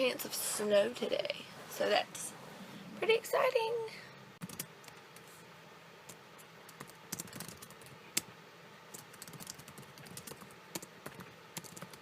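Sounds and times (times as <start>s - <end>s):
typing on computer keyboard: 4.4s - 5.0s, 6.1s - 8.3s, 8.9s - 12.0s.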